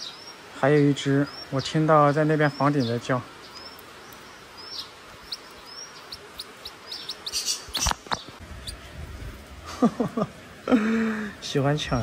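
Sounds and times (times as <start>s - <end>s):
small bird chirping: 0.0s - 8.9s.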